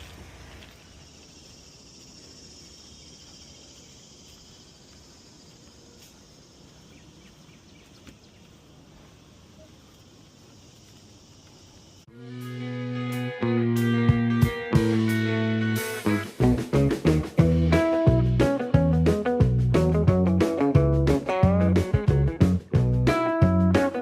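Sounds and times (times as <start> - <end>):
insects trilling: 0.0 - 12.1
guitar music: 12.1 - 24.0.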